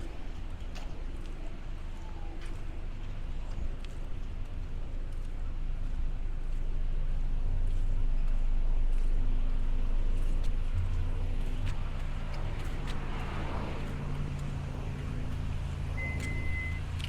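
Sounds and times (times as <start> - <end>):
wind: 0.0 - 17.0
motor engine passing by: 10.2 - 16.1.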